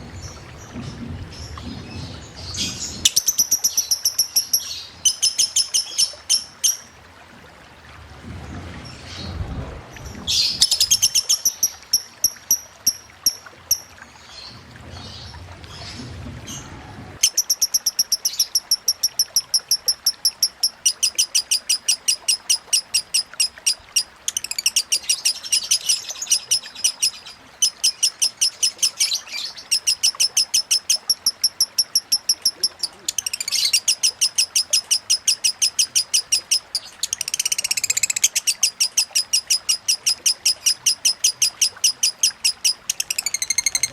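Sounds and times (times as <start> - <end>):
lovebird trilling chirps: 2.5 - 6.9, 10.4 - 13.9, 17.2 - 43.9.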